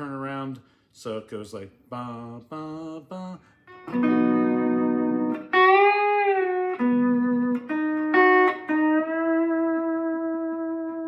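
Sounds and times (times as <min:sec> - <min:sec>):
lap steel guitar playing: 0:03.7 - 0:11.0.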